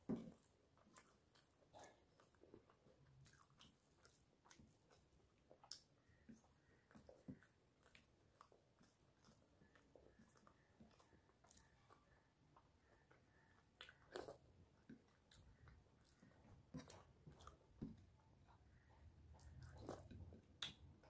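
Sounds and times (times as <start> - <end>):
faint chewing: 0.0 - 21.0.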